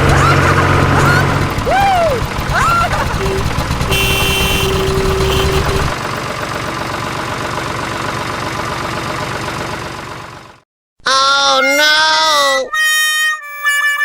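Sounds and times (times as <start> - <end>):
tractor engine chugging: 0.0 - 10.6.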